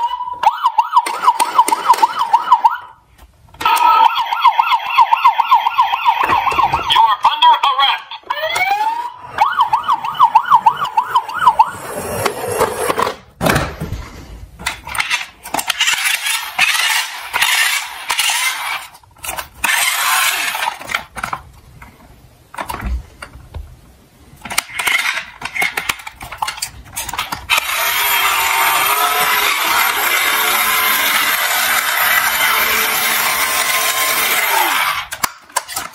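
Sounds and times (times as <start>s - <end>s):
siren wailing: 0.0s - 3.0s, 3.6s - 7.5s, 8.2s - 12.1s, 27.6s - 35.1s
toy cars clattering: 14.6s - 23.3s, 24.4s - 35.9s.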